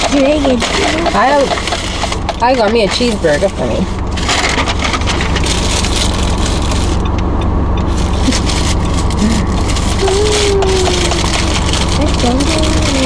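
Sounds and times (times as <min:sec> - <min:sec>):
car cabin road and engine noise: 0:00.0 - 0:13.0.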